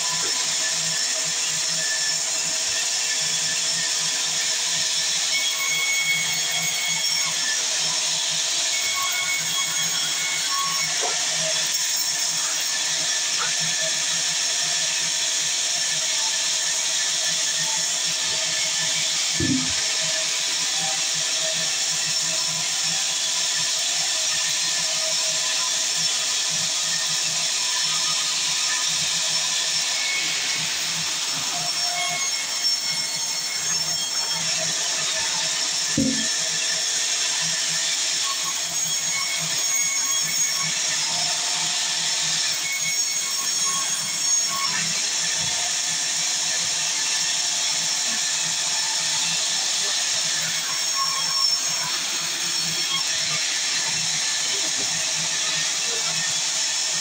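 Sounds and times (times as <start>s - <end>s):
sawmill saw cutting timber: 0.0s - 57.0s
knocks from mill: 36.0s - 36.3s.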